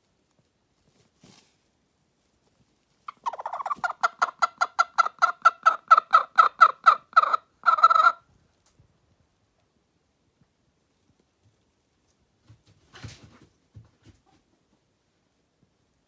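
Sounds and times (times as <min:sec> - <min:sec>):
hen clucking: 0:03.1 - 0:08.2
hen squawk: 0:03.1 - 0:08.2.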